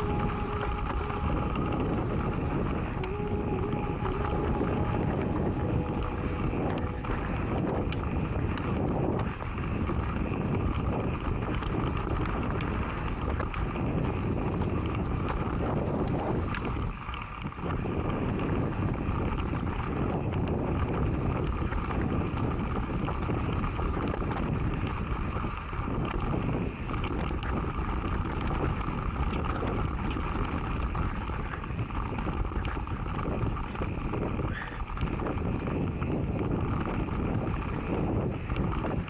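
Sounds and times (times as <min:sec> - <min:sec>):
wind buffeting microphone: 0:00.0 - 0:39.0
bike rattling over loose rock: 0:08.1 - 0:39.0.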